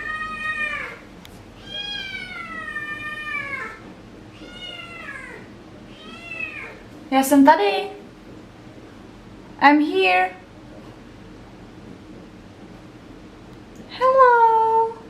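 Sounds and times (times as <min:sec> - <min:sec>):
cat meowing: 0:00.0 - 0:01.0, 0:01.6 - 0:06.8.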